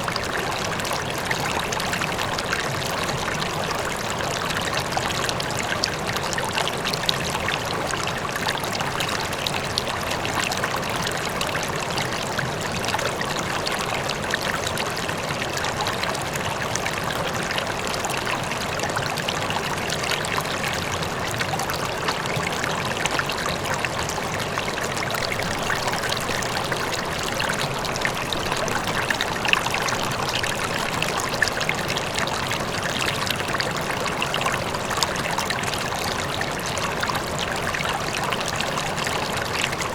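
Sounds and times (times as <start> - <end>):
faint waterfall: 0.0 - 39.9
river water flowing over rocks: 0.0 - 39.9.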